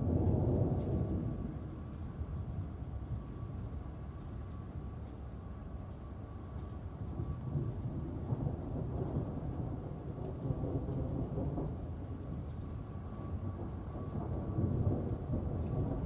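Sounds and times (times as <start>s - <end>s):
rolling thunder: 0.0s - 3.3s, 7.0s - 16.0s
steady rain: 0.0s - 16.0s.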